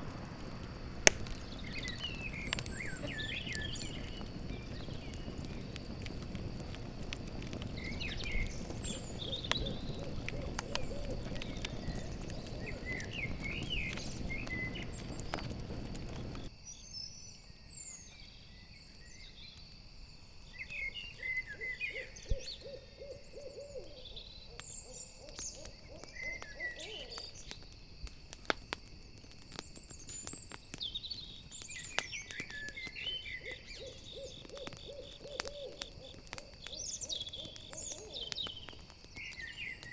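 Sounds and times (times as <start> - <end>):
campfire crackling: 0.0 - 16.6, 19.0 - 39.9
owl hooting: 7.8 - 16.4, 21.5 - 27.3, 33.4 - 36.2, 37.0 - 38.4.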